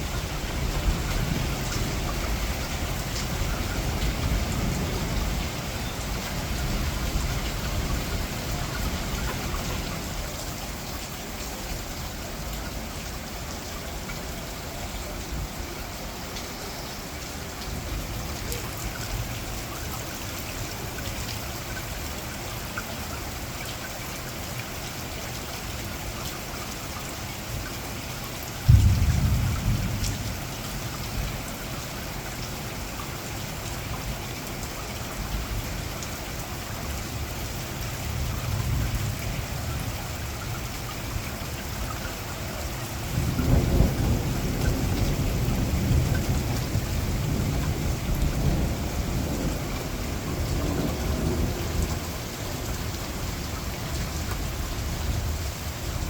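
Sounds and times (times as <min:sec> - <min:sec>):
heavy rain falling: 0:00.0 - 0:56.0
thunder clap and rumble: 0:00.2 - 0:10.3, 0:28.7 - 0:31.4, 0:43.1 - 0:56.0.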